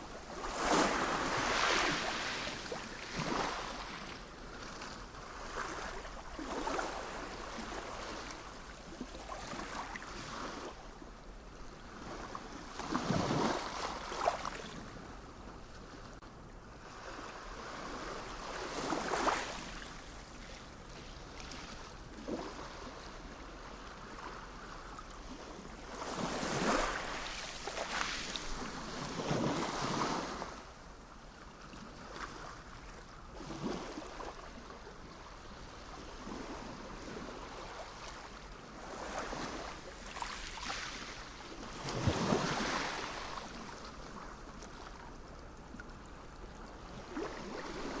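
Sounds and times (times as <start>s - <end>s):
sea waves washing in: 36.2s - 43.9s.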